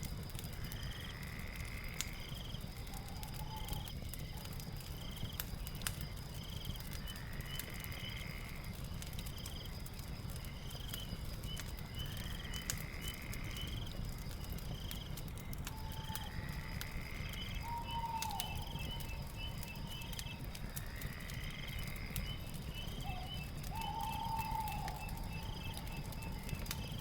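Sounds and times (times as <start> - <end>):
fire crackling and popping: 0.0 - 27.0
insects chirping: 0.0 - 27.0.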